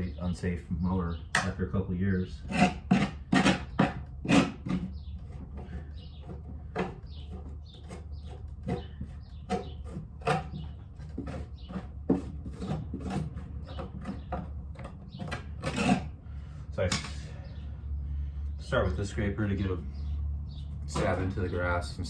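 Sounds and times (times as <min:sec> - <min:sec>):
metal tools scraping dirt: 0:02.3 - 0:16.2, 0:18.7 - 0:22.0.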